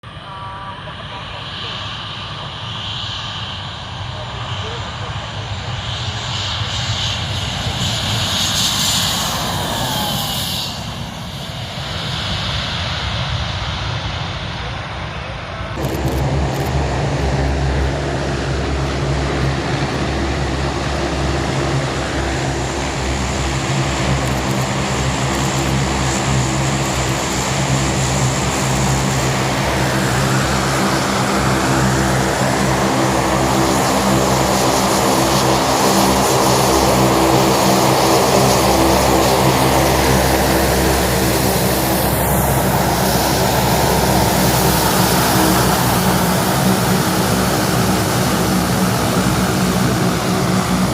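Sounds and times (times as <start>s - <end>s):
aircraft engines humming: 0.0s - 50.9s.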